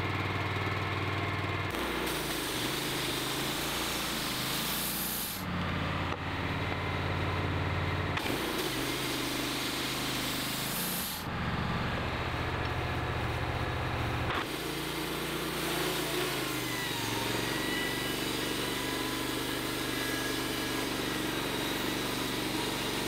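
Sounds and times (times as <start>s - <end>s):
sawmill engine running: 0.0s - 23.0s.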